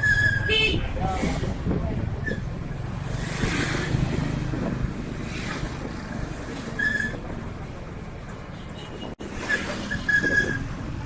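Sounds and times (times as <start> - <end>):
wind noise on microphone: 0.0 - 7.8, 8.9 - 11.0
vehicle engine rumble: 0.0 - 11.0.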